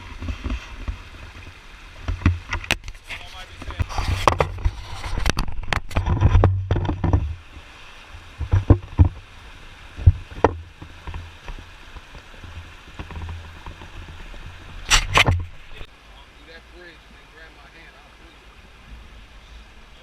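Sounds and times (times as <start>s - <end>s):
wind rumble on microphone: 0.0s - 15.9s.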